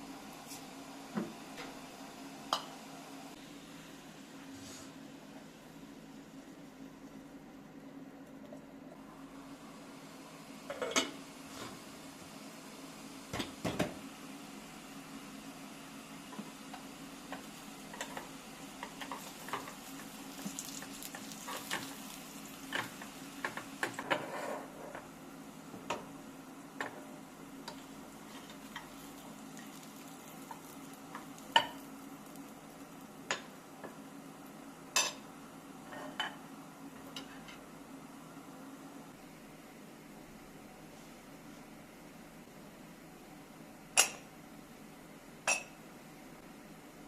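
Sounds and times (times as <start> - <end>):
utensils clinking on pots and dishes: 10.7 - 11.2, 35.0 - 35.2, 44.0 - 44.3, 45.4 - 45.8.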